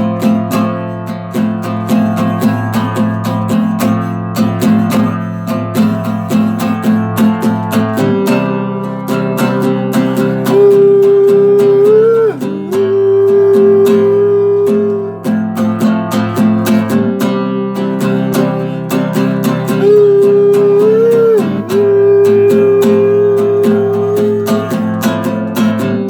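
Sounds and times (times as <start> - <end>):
acoustic guitar strumming: 0.0 - 26.0
long held bending note: 10.2 - 15.3, 19.7 - 25.0.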